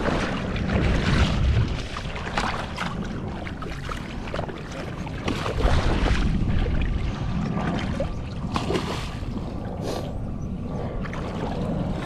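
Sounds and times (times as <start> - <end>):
splashing and clicking: 0.0 - 9.5
wind buffeting microphone: 0.0 - 12.0.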